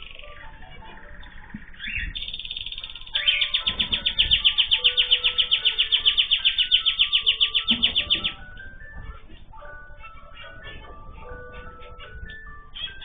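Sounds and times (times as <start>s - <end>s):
songbird trilling: 0.0s - 8.6s.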